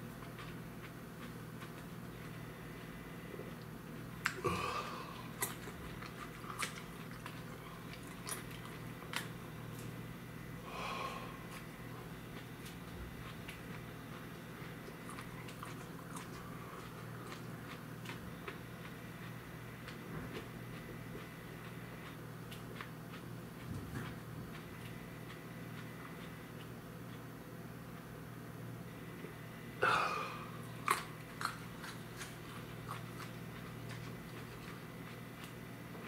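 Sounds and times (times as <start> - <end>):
person chewing: 0.0 - 28.1, 29.8 - 36.0
steady low hum: 0.0 - 36.0
person breathing: 10.6 - 11.6, 29.8 - 30.6.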